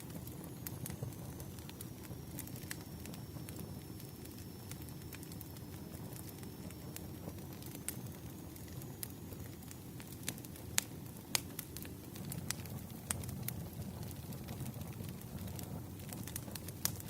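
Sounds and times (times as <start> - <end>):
wood fire crackling: 0.0 - 17.0
sharp pops of burning logs: 4.3 - 17.0.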